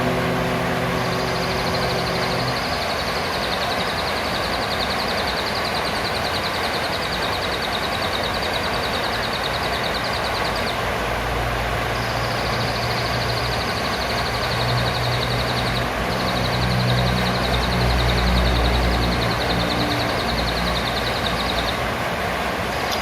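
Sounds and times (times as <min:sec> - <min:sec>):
parrot high-pitched trills: 0:12.0 - 0:21.9.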